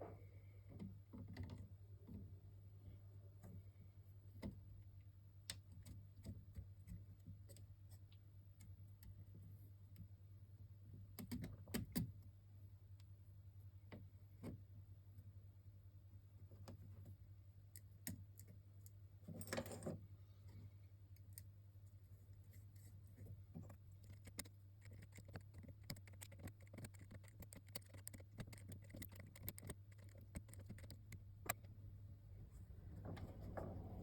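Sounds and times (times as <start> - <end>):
steady low hum: 20.0 - 34.0
small parts and tools clicking: 23.5 - 31.7.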